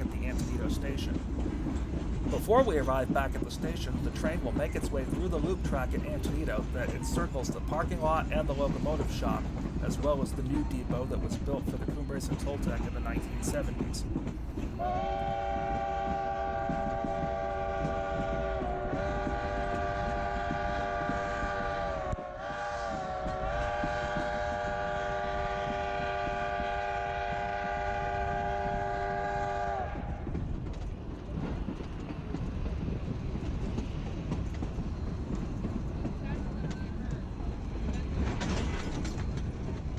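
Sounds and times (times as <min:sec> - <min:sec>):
train rumbling on track: 0:00.0 - 0:39.9
steam locomotive chime whistle: 0:03.8 - 0:14.0, 0:14.7 - 0:29.9.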